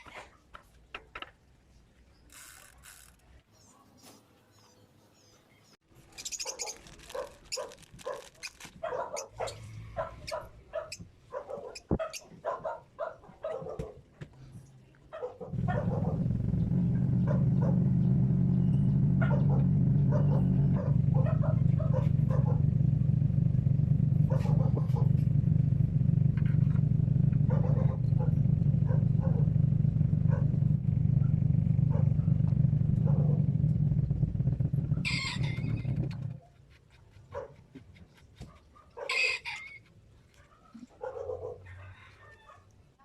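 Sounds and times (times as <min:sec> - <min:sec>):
dog barking: 0:06.4 - 0:14.0, 0:15.1 - 0:16.3, 0:17.2 - 0:17.9, 0:19.2 - 0:22.6, 0:24.3 - 0:25.2, 0:27.5 - 0:29.4, 0:30.3 - 0:30.6, 0:37.3 - 0:37.7, 0:38.4 - 0:39.4, 0:40.3 - 0:42.7
low mechanical hum: 0:15.5 - 0:36.4.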